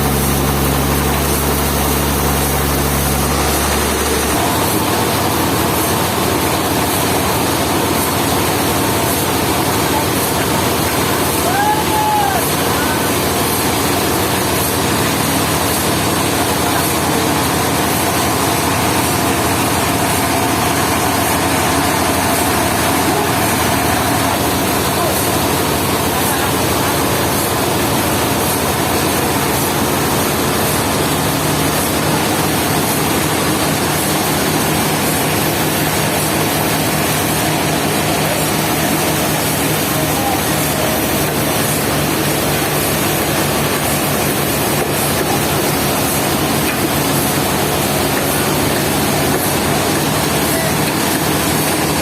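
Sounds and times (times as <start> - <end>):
sawmill machinery drone: 0.0 - 52.0.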